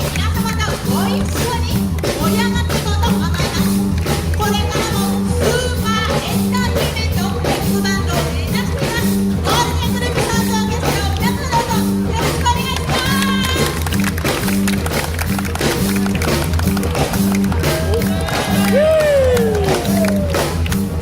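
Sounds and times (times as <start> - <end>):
live band playing: 0.0 - 21.0
walking bass line: 0.0 - 21.0
drum hits: 12.4 - 21.0
horn melody: 17.3 - 21.0.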